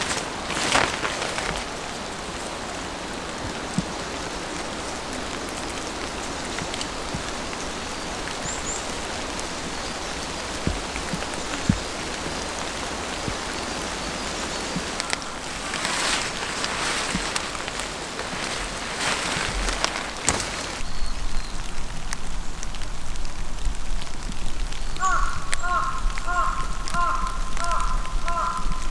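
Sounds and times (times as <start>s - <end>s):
steady rain falling: 0.0s - 28.9s
heavy drops thudding: 14.7s - 20.8s.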